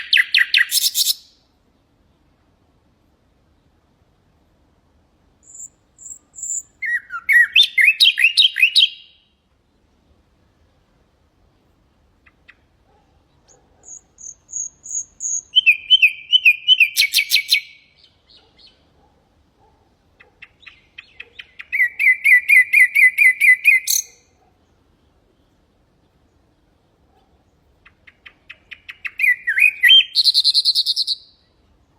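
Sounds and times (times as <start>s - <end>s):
nightingale singing: 0.0s - 1.5s, 5.4s - 9.4s, 12.1s - 19.0s, 20.2s - 24.5s, 27.4s - 31.9s.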